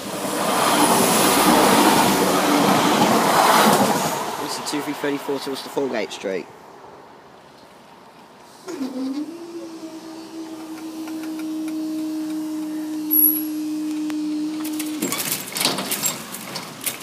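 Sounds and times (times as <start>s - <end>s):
barrier motor hum: 8.7s - 15.2s.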